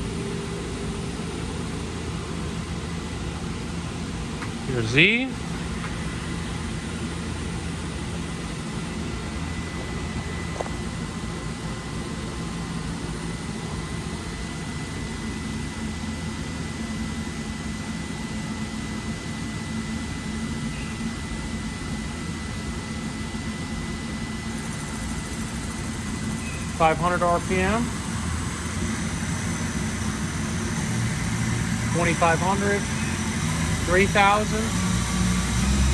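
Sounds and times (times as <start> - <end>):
high machine whine: 0.0 - 35.9
lathe machine hum: 24.3 - 35.9.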